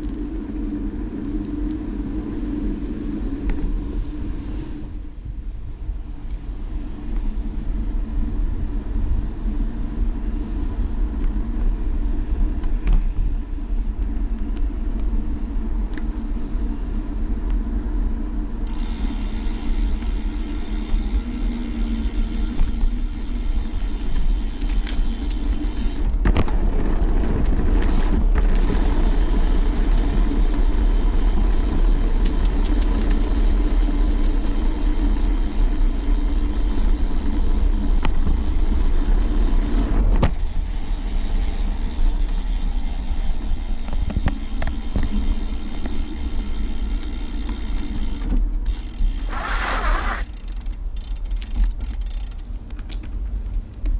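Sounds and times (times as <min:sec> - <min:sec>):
wind on microphone: 0:00.0 - 0:38.9
bicycle tyres on ground: 0:00.0 - 0:53.9
handlebar vibration: 0:18.6 - 0:26.9, 0:27.8 - 0:53.1
sharp clicks and rattles: 0:41.2 - 0:53.2.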